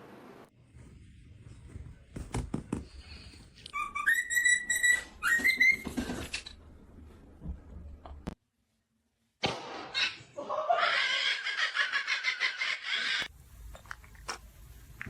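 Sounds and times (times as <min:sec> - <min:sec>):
parrot whistling: 0:03.8 - 0:05.8.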